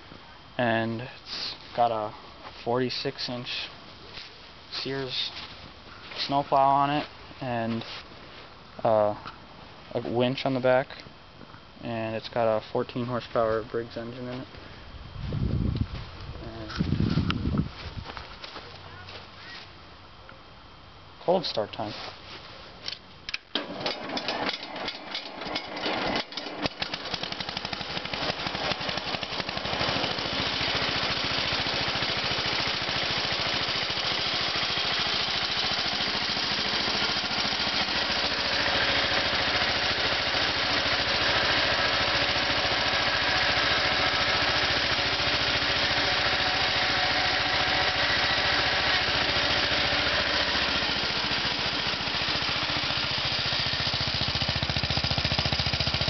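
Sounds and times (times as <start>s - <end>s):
garden tractor engine starting: 22.9s - 56.0s.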